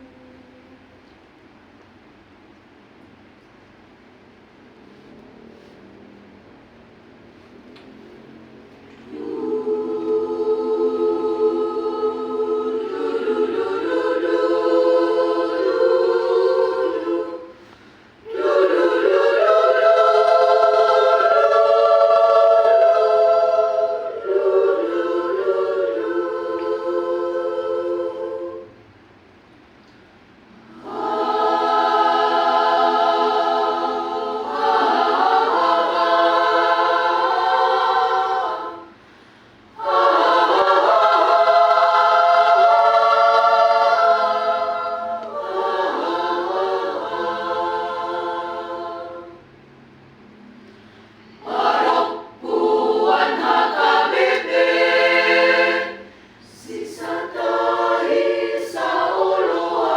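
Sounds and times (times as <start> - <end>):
choir singing unaccompanied: 8.9 - 29.0, 30.5 - 49.7, 51.3 - 59.9.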